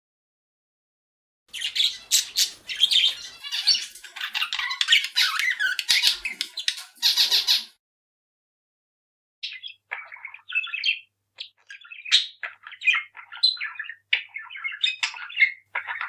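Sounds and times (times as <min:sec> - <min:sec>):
bird squawking harshly: 0:07.0 - 0:07.8.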